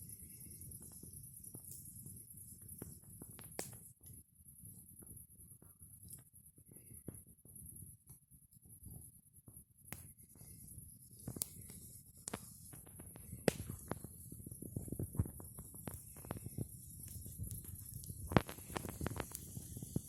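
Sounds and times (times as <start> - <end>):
campfire crackling: 0.1 - 3.9, 9.9 - 20.0.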